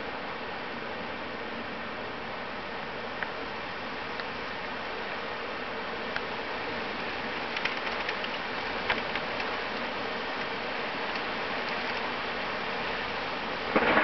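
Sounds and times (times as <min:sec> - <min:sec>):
rain hissing: 0:03.8 - 0:14.0
raindrops ticking nearby: 0:07.0 - 0:12.6.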